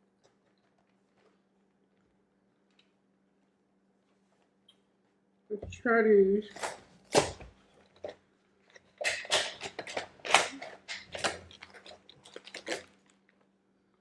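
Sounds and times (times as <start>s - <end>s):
snack crinkling and crunching: 6.5s - 13.6s.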